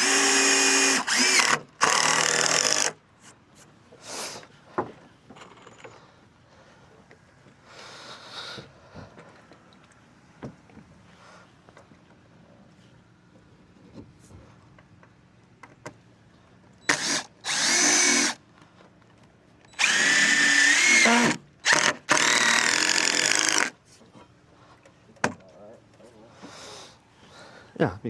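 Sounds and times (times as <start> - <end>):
power drill driving screws: 0.0 - 3.0, 16.9 - 18.4, 19.7 - 23.8.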